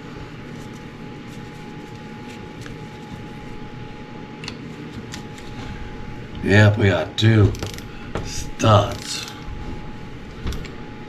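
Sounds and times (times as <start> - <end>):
background hum: 0.0 - 11.0
hand tools clicking on metal: 8.8 - 9.5.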